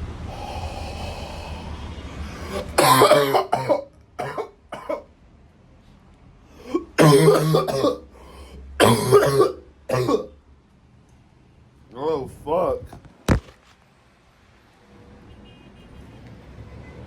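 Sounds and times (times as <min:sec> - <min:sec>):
man coughing hard: 0:02.4 - 0:05.1, 0:06.6 - 0:10.4.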